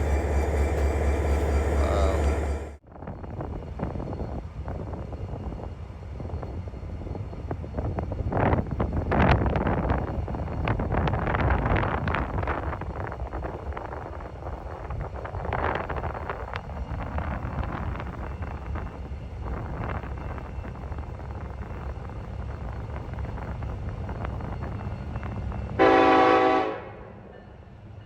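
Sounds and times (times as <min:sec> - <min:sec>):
diesel locomotive idling: 0:00.0 - 0:02.8
wind on microphone: 0:02.9 - 0:25.8
locomotive horn blast: 0:25.8 - 0:27.2.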